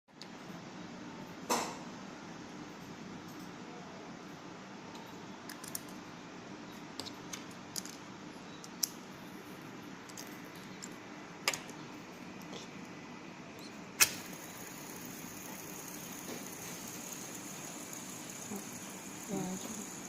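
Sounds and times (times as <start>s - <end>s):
fidget spinner whirring: 14.0s - 20.0s.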